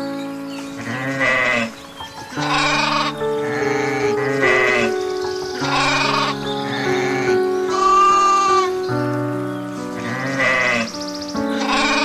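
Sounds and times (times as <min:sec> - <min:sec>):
music with long held notes: 0:00.0 - 0:12.0
sheep bleating: 0:02.4 - 0:04.9, 0:05.6 - 0:06.4, 0:11.7 - 0:12.0.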